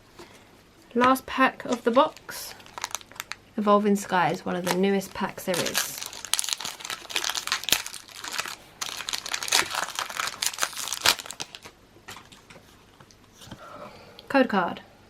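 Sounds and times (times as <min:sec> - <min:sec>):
foil wrapper crinkling: 0:01.8 - 0:12.5.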